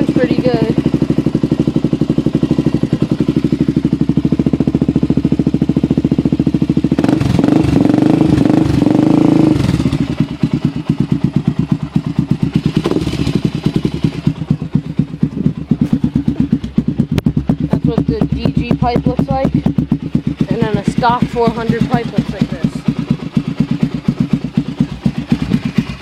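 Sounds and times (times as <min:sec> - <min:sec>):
atv engine idling and revving: 0:00.0 - 0:26.0.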